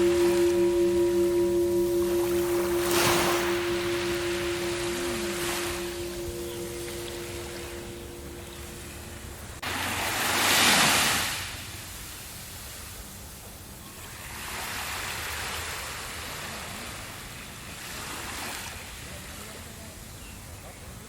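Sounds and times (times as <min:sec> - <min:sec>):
ocean waves breaking: 0:00.0 - 0:11.4.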